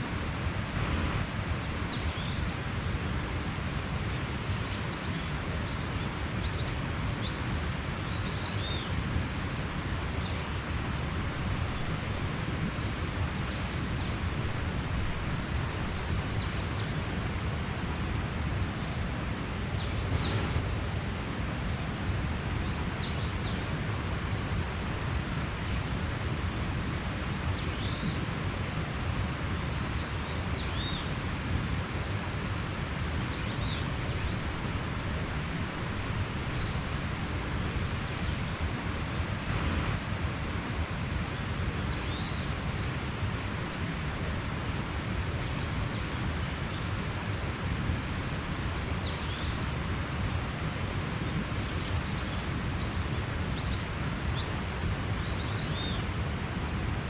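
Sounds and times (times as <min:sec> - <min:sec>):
mountain stream running: 0:00.0 - 0:57.0
birds chirping: 0:18.4 - 0:20.7.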